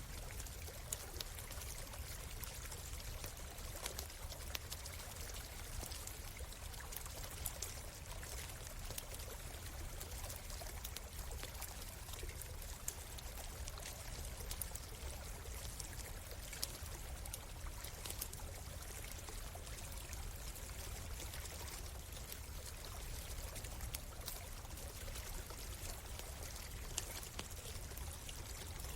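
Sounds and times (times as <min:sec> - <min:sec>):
small stream running: 0:00.0 - 0:28.9
campfire crackling and popping: 0:00.1 - 0:20.4, 0:21.0 - 0:28.9.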